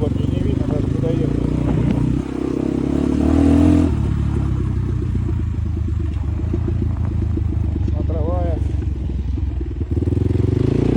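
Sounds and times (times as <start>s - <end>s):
motorcycle engine revving: 0.0s - 10.9s.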